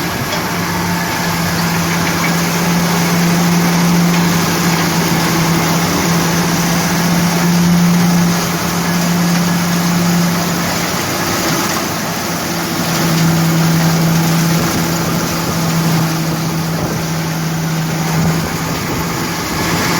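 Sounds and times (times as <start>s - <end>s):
thresher engine hum: 0.0s - 19.9s.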